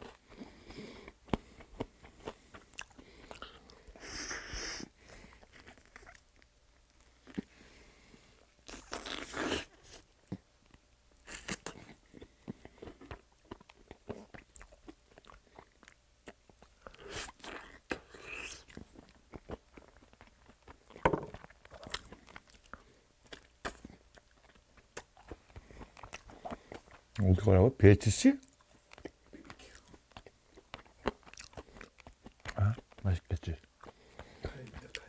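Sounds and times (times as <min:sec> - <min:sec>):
crunching fried chicken: 0:08.6 - 0:10.1, 0:11.2 - 0:27.3.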